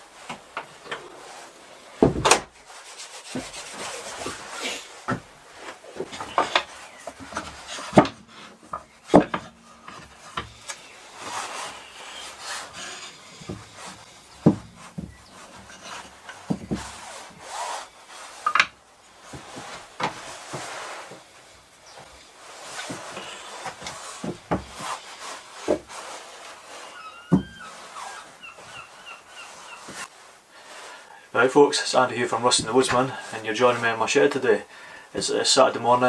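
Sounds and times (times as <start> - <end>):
rasping on wood: 2.6 - 4.9, 6.5 - 18.7
wood knocking when set down: 6.0 - 10.6, 14.4 - 15.7.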